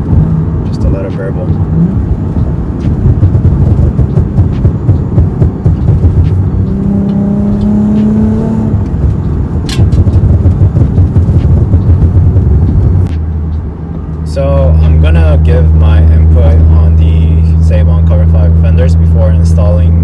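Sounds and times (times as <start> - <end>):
car exhaust burbling: 0.0 - 13.1.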